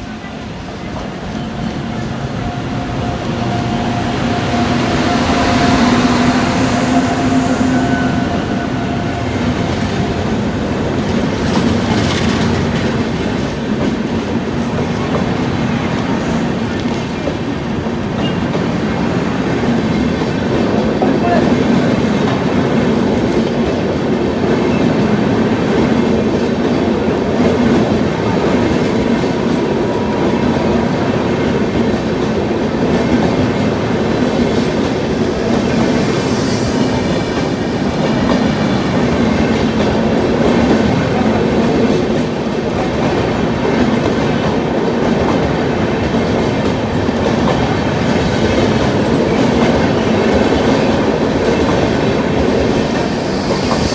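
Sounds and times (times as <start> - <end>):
train wheels rumbling on track: 0.0 - 53.9
brief hiss: 34.6 - 39.1, 52.4 - 53.9.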